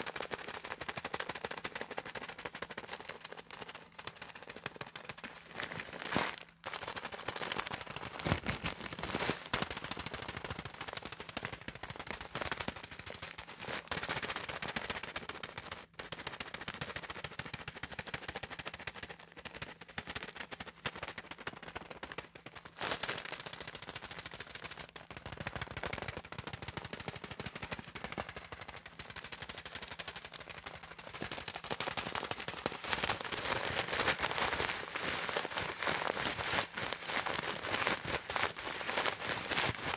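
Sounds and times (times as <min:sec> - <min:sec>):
comb scraping paper: 0:02.4 - 0:15.6, 0:28.4 - 0:39.9.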